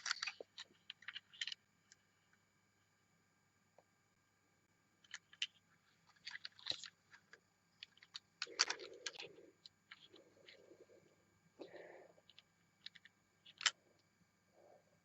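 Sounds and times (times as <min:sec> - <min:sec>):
toy and packaging handling clicks: 0:00.0 - 0:01.6, 0:05.0 - 0:10.6, 0:12.2 - 0:13.8.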